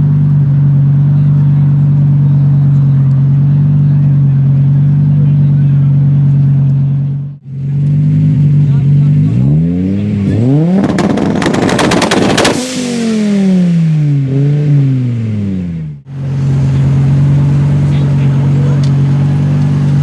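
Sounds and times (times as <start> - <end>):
engine revving high: 7.9 - 15.8
exhaust crackles and bangs: 10.7 - 14.1.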